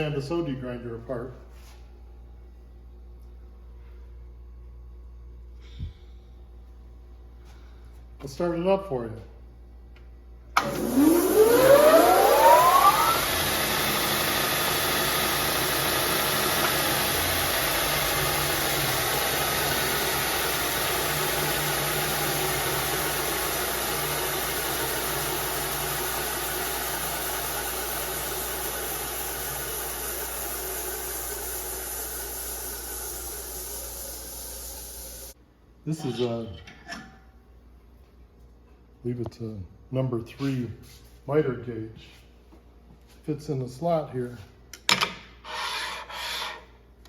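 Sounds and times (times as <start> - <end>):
sander motor whining: 10.6 - 34.9.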